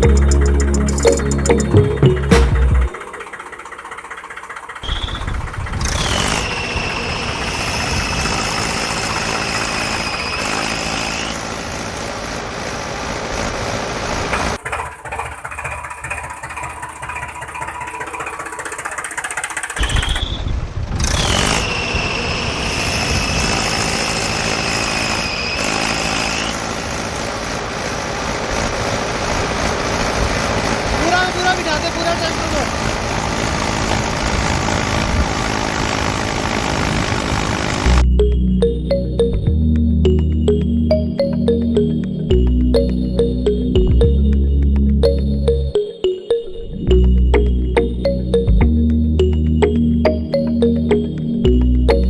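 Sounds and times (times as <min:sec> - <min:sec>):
mini tractor running with whine: 0:02.6 - 0:38.1.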